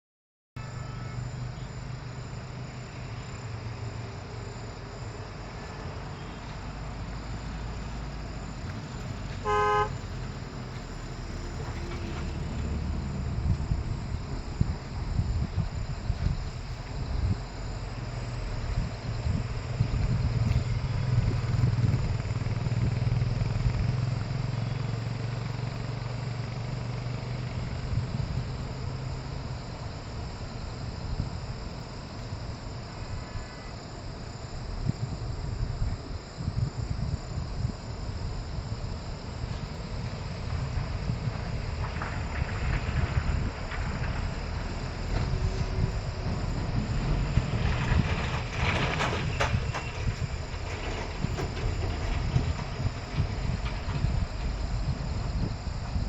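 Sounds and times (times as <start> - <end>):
vehicle engine running: 0.7 - 30.0
short horn toot: 9.4 - 10.0.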